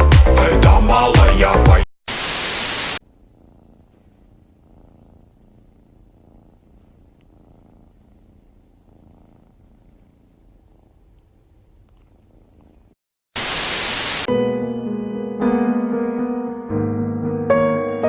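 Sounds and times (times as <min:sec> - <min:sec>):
music: 0:00.0 - 0:01.8, 0:14.3 - 0:18.0
loud static hiss: 0:02.1 - 0:03.0, 0:13.4 - 0:14.3
cat purring: 0:03.0 - 0:13.0.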